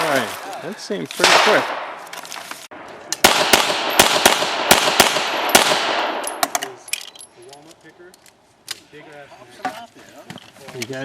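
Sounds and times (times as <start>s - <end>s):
pistol shots with echo: 1.2s - 2.0s, 3.2s - 6.4s.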